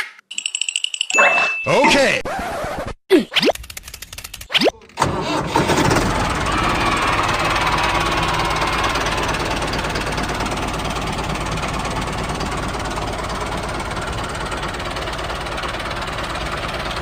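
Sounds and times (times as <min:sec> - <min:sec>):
tractor engine knocking: 0:05.0 - 0:17.0.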